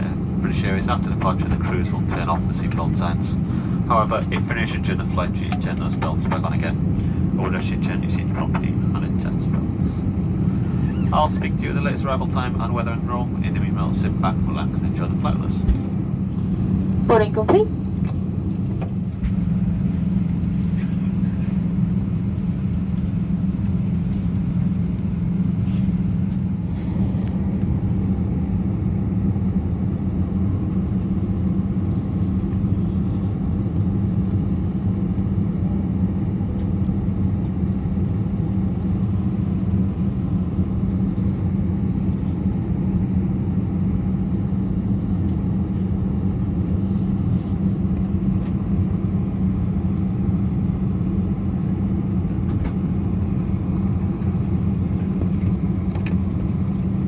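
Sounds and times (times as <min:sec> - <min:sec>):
aircraft cabin ventilation hum: 0:00.0 - 0:57.0
constant low tone: 0:11.1 - 0:18.9.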